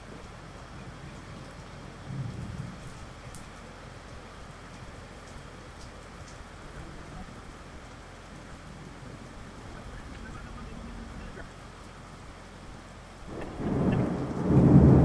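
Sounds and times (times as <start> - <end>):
steady rain: 0.0 - 15.0
low rumble: 13.3 - 15.0.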